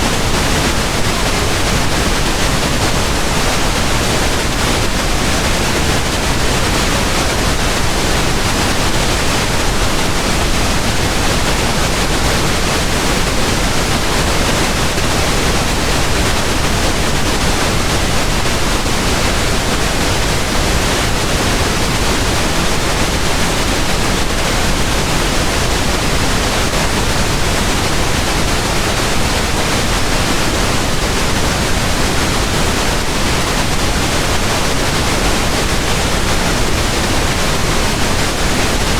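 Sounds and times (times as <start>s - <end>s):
steady pink noise hiss: 0.0s - 38.9s.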